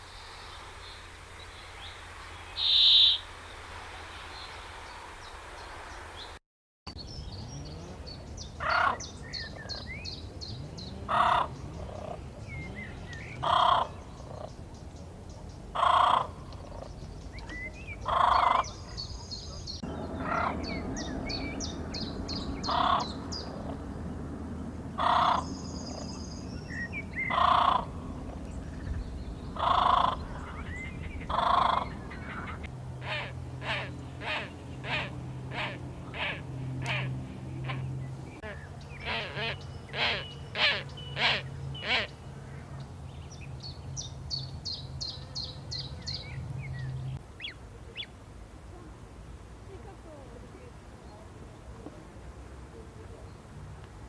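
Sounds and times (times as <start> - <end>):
faint high bird chirps: 0.0 - 6.3
bird repeating loud short call: 2.6 - 3.3.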